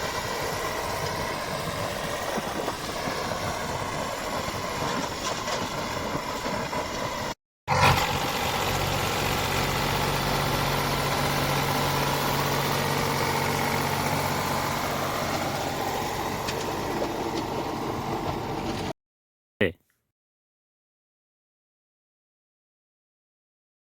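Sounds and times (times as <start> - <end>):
tractor diesel engine running: 0.0 - 18.9.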